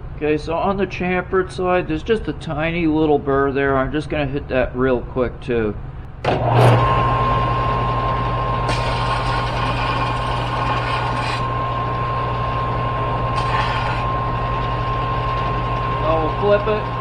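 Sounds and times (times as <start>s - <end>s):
machine motor humming and whining: 6.3s - 17.0s
hissing scrape of deburring: 8.7s - 11.5s, 13.3s - 14.1s.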